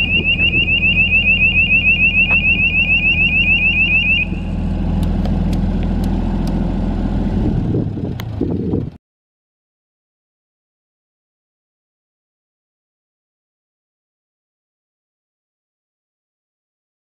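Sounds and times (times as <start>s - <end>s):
electronic warning beeper chirps: 0.0s - 4.6s
diesel generator running: 0.0s - 9.0s.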